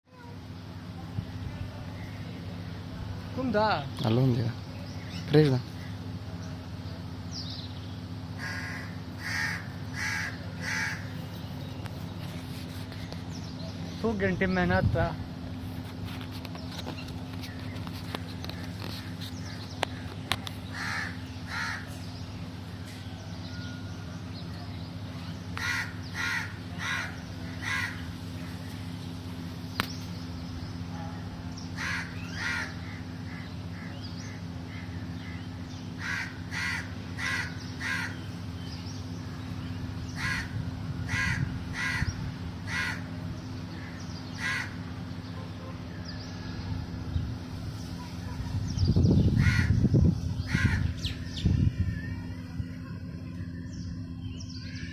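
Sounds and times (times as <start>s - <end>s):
steady low hum: 0.1s - 54.9s
crow cawing: 8.4s - 11.1s, 19.9s - 22.0s, 25.6s - 28.6s, 31.8s - 35.4s, 36.0s - 38.3s, 40.2s - 43.2s, 43.8s - 44.8s, 49.3s - 49.8s, 50.5s - 51.1s.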